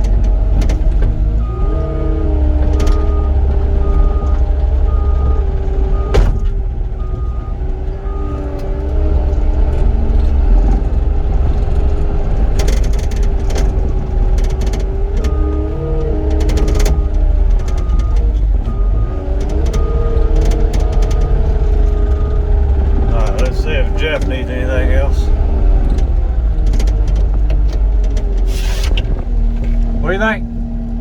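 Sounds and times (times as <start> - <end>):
loader diesel engine running: 0.0 - 31.0
backup alarm beeping: 1.4 - 8.6, 16.6 - 25.5.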